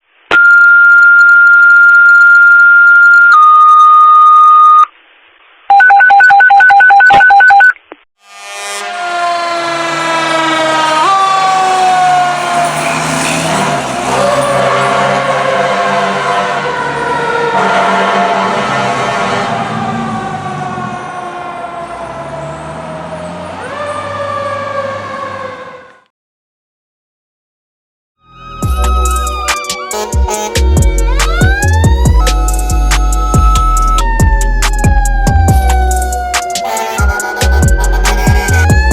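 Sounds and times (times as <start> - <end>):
radio paging tones: 0.3 - 4.9, 5.7 - 7.8
rapid high-low beeping alert: 36.8 - 38.9.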